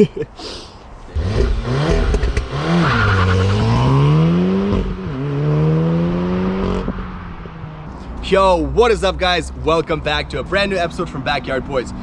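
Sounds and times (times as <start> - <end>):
car engine accelerating: 1.2 - 8.0.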